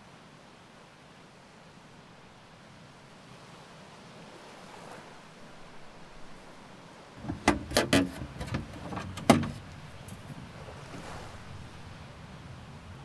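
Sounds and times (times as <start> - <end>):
wooden chest lid knocking: 7.2 - 10.3.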